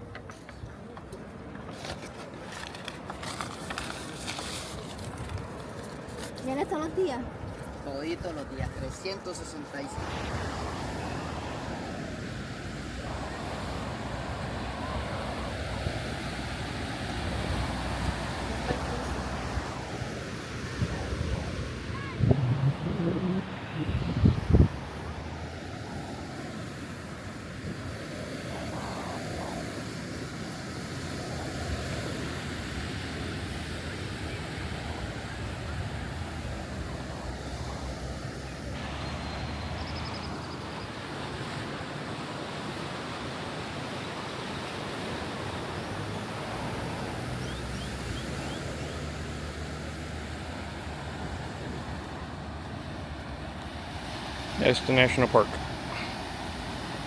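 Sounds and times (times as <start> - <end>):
ocean surf washing onto beach: 0.0 - 57.0
wind on microphone: 10.0 - 53.4.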